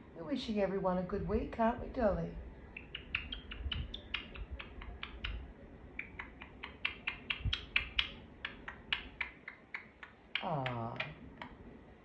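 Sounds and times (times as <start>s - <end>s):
parakeet chirping: 2.8s - 5.4s, 6.0s - 11.2s.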